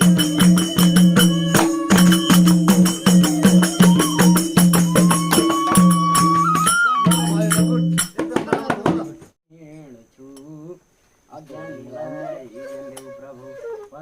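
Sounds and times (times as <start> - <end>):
high held melody note: 0.0 - 8.0
jingling tambourine percussion: 0.0 - 9.3.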